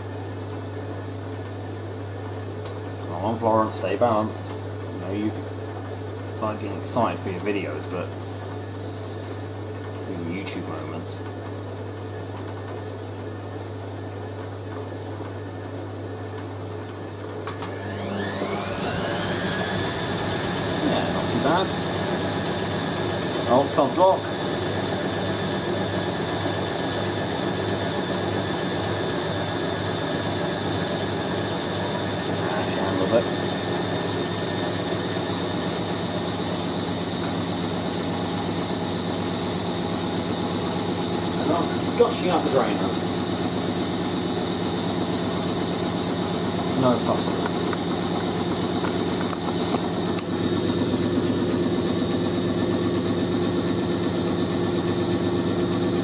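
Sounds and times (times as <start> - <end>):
washing machine running: 0.0 - 56.0
washing machine spinning: 0.0 - 56.0.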